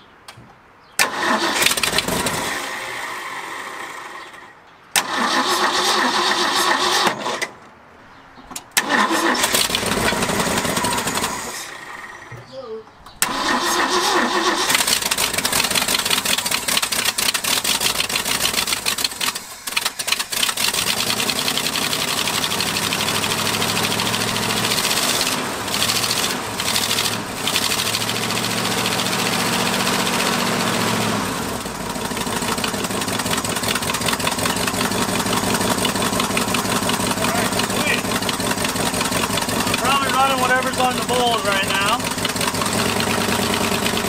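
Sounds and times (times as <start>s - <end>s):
engine running roughly: 9.4s - 12.2s, 13.3s - 44.0s.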